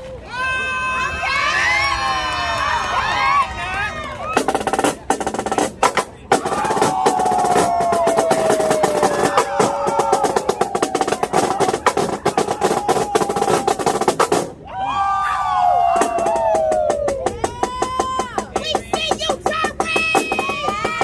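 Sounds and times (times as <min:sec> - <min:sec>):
voices: 0:03.0 - 0:14.1, 0:15.0 - 0:21.0
marching drumline playing: 0:04.3 - 0:14.6, 0:15.9 - 0:21.0.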